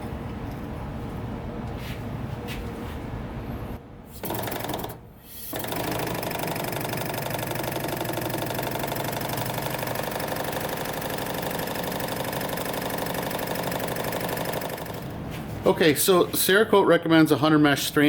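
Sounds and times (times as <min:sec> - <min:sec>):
machine knocking rhythmically: 0:04.2 - 0:15.2.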